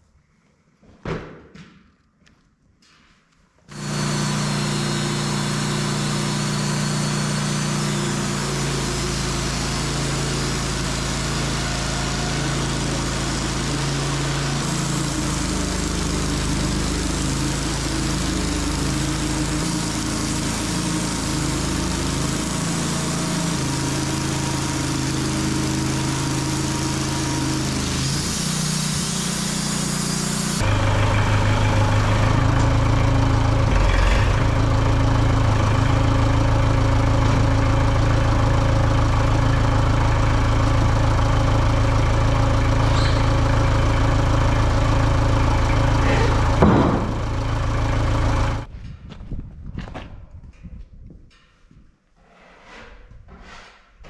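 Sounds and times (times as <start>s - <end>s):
blade sawing through log: 3.7s - 32.8s
sawmill engine under load: 3.7s - 48.7s.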